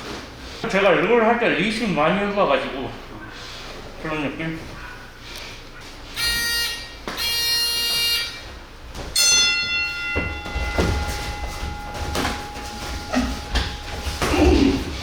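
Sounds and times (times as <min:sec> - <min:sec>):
struck bell ringing: 0:06.2 - 0:15.0.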